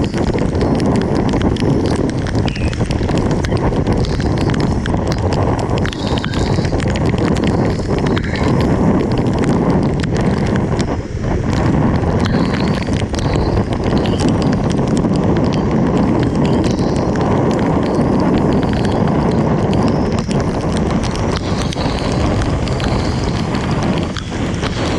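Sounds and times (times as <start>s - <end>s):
heavy rain falling: 0.0s - 24.9s
raindrops tapping a hard surface: 0.0s - 24.9s.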